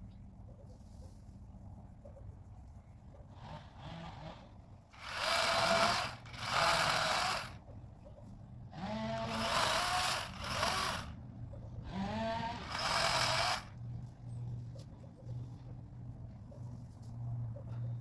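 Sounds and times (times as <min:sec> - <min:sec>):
electric chainsaw whining: 0:05.0 - 0:07.6, 0:08.7 - 0:11.2, 0:11.8 - 0:13.8.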